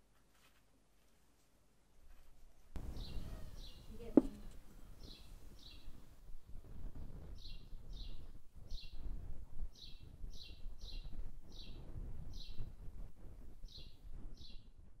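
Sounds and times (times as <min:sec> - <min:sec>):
bird chirping: 0:02.8 - 0:06.0, 0:07.4 - 0:09.1, 0:09.8 - 0:12.7, 0:13.6 - 0:14.7.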